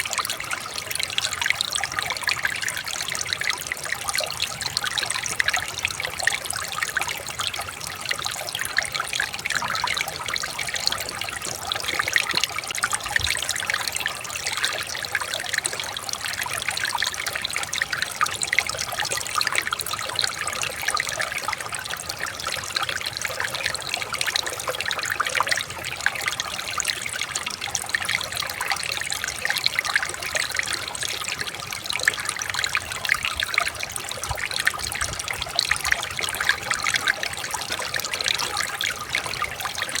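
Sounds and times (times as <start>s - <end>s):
stream trickling over stones: 0.0s - 40.0s.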